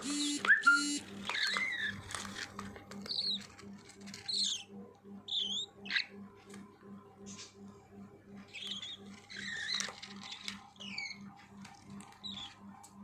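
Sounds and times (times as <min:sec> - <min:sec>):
harsh buzzy bird calls: 0:00.0 - 0:02.0, 0:03.0 - 0:03.5, 0:04.1 - 0:06.2, 0:08.5 - 0:11.4, 0:12.1 - 0:12.7
budgerigars chirping: 0:05.3 - 0:06.1, 0:08.5 - 0:09.6.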